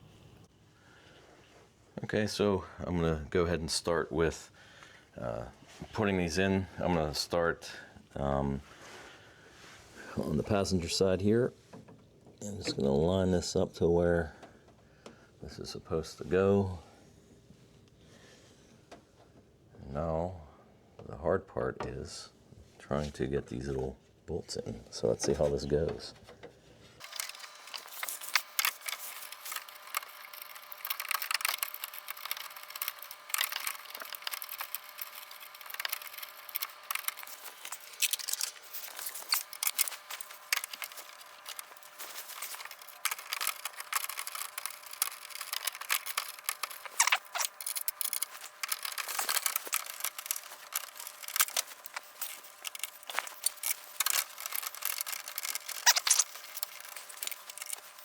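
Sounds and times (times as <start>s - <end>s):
small bolts and plastic clicking: 26.4s - 58.0s.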